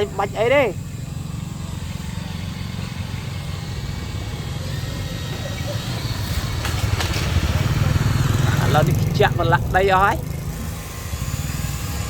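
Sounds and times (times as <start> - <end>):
engine running with pulsing beat: 0.0 - 12.0.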